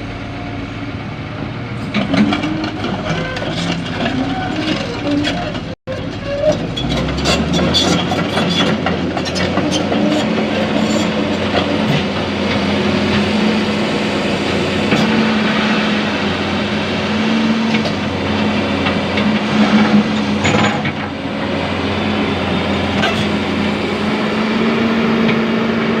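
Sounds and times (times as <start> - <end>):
diesel machinery running: 0.0 - 26.0
excavator clattering and knocking: 1.2 - 26.0.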